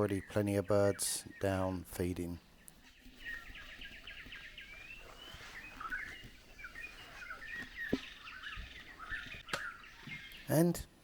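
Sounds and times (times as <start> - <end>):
small birds chirping: 0.0 - 11.0
birds whistling: 2.5 - 10.8.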